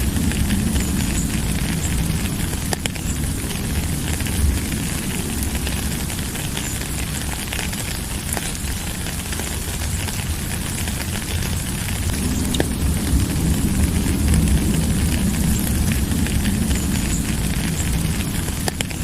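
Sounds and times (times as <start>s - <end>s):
steady rain hiss: 0.0s - 19.0s
single raindrop ticks: 0.2s - 3.6s, 11.0s - 19.0s.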